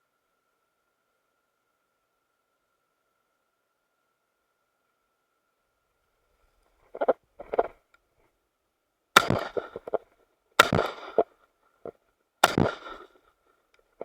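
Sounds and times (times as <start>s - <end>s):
shotgun shots with echo: 9.2s - 10.0s, 10.6s - 11.3s, 12.4s - 13.2s.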